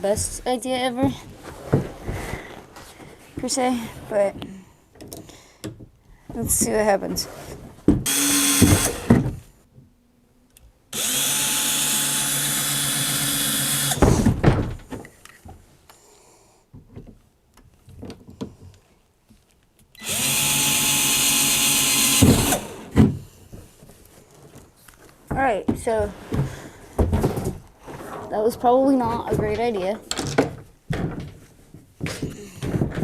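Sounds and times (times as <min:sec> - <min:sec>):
power drill running: 0:08.1 - 0:09.1, 0:11.0 - 0:14.0, 0:20.0 - 0:22.9.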